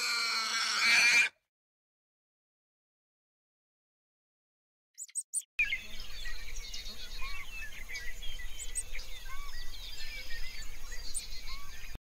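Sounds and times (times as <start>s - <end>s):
small birds chirping: 5.0s - 12.0s.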